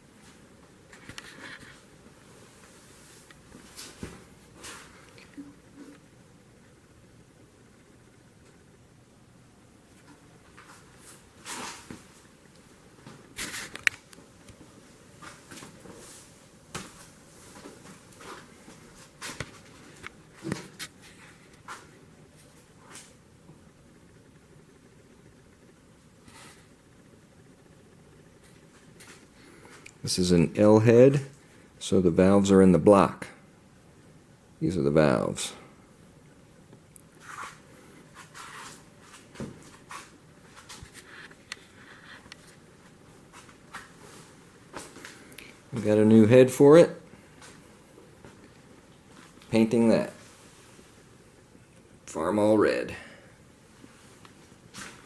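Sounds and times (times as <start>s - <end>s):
soft handling rustles: 9.8s - 23.2s, 37.1s - 46.0s, 53.7s - 55.0s.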